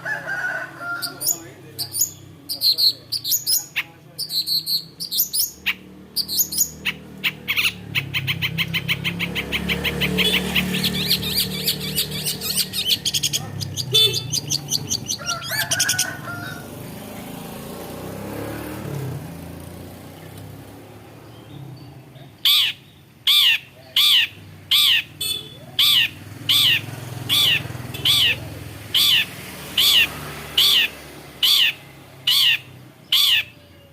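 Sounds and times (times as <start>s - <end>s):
bird sharp downward-sweeping calls: 0.8s - 16.6s, 22.4s - 33.6s
bird high chattering: 0.8s - 16.7s, 22.4s - 33.9s.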